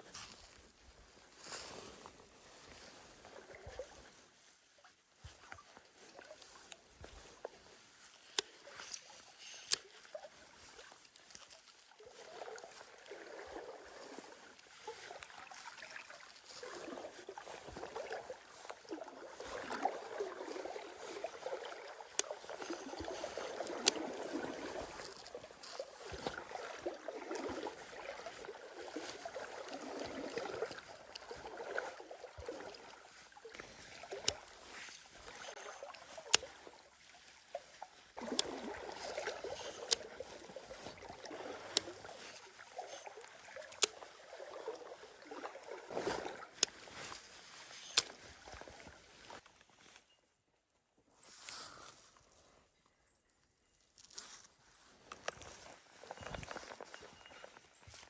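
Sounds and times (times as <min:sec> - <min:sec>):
stream water rushing and gurgling: 0:05.2 - 0:49.4.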